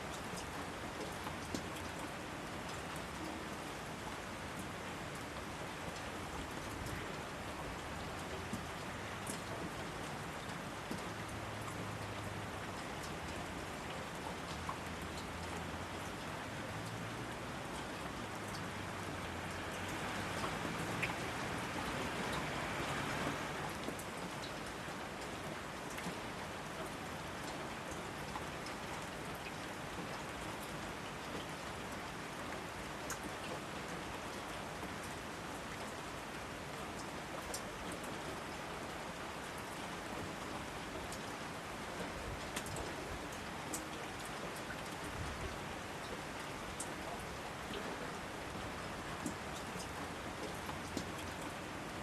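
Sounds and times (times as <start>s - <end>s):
raindrops ticking close by: 0.0s - 52.0s
steady rainfall: 0.0s - 52.0s.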